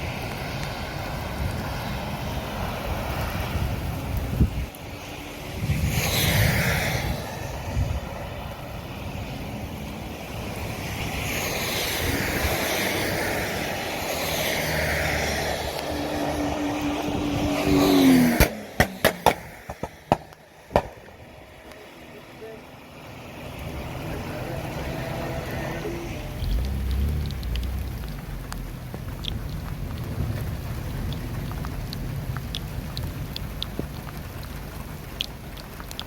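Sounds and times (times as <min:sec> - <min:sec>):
wind and rain on microphone: 0:00.0 - 0:36.0
vehicle engine: 0:05.2 - 0:36.0
sharp knocks: 0:18.4 - 0:21.0.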